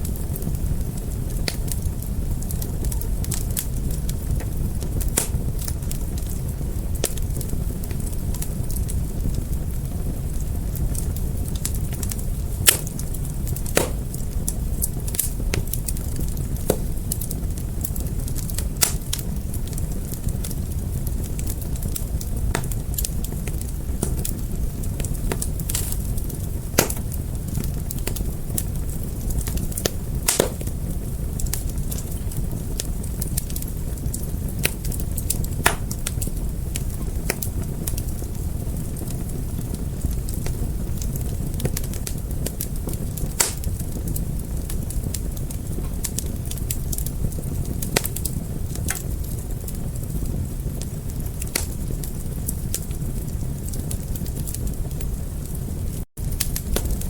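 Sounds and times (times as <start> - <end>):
wood fire crackling: 0.0 - 57.0
sharp snap of fire: 4.4 - 6.4, 11.6 - 19.8, 21.4 - 24.3, 25.3 - 28.2, 29.4 - 32.0, 32.8 - 36.3, 43.2 - 43.9, 47.8 - 48.3, 51.4 - 51.9, 56.2 - 57.0.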